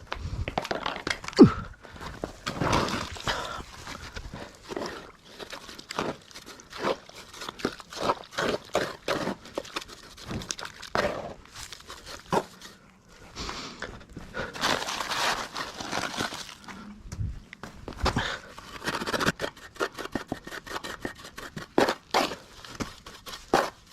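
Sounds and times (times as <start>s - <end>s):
hand tools scraping on cement: 18.4s - 23.9s.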